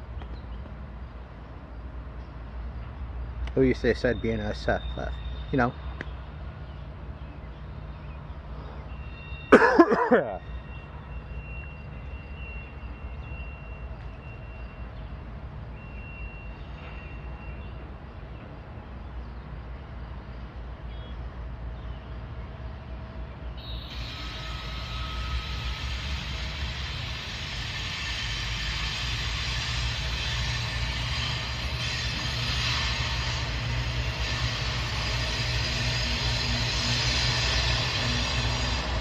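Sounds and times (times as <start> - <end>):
diesel locomotive rumble: 0.0 - 39.0
loud horn blast: 23.6 - 26.4
hiss: 23.9 - 39.0.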